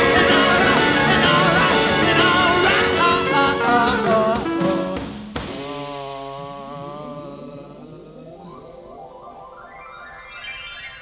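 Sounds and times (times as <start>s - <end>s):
live rock band with singing: 0.0s - 7.0s.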